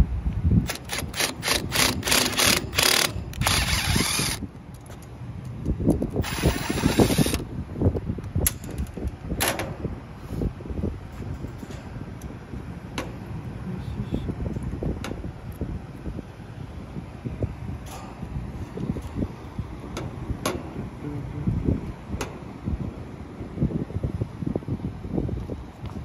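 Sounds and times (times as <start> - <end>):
cordless drill bursts: 0.7 - 4.4, 6.2 - 7.4.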